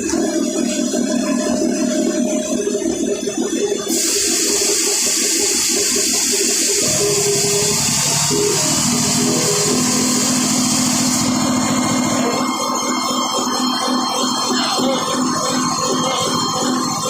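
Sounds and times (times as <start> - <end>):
motor pulsing: 0.0 - 17.0
compressed air hissing: 3.9 - 11.8.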